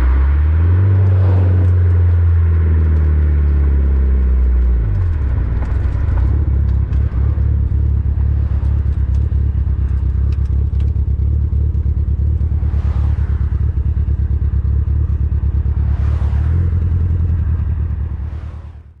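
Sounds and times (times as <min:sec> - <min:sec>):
car engine idling: 0:00.0 - 0:19.0
whooshing swells: 0:00.2 - 0:02.3, 0:04.5 - 0:09.9.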